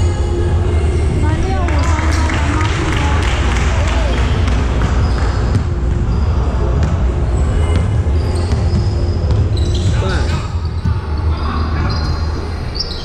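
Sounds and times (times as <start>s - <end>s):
basketball dribbling: 1.6s - 11.1s
shoe squeaks: 4.9s - 6.5s, 7.2s - 13.0s.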